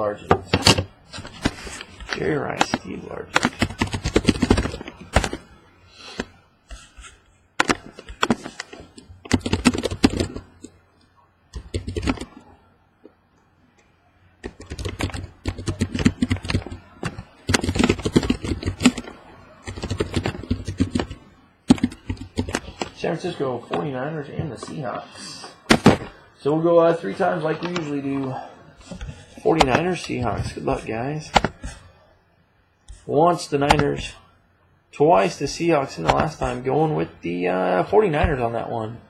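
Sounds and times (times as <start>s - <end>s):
keyboard typing: 0.5s - 5.5s, 6.1s - 10.7s, 11.5s - 12.5s, 14.4s - 23.0s, 25.6s - 26.2s, 27.5s - 31.9s, 36.0s - 36.5s.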